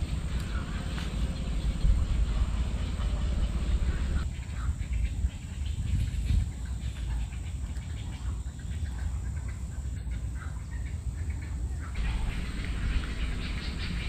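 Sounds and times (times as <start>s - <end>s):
birds calling: 0.0s - 14.0s
steady low rumble: 0.0s - 14.0s
dense high hiss: 11.0s - 14.0s.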